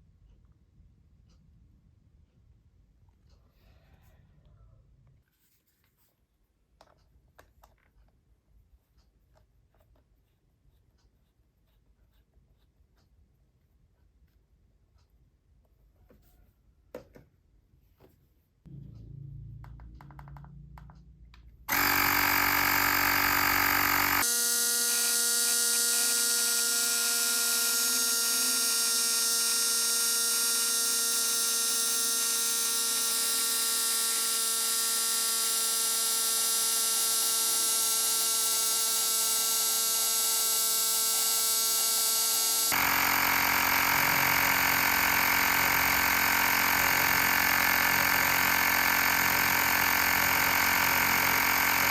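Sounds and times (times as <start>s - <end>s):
air compressor buzzing: 18.7s - 51.9s.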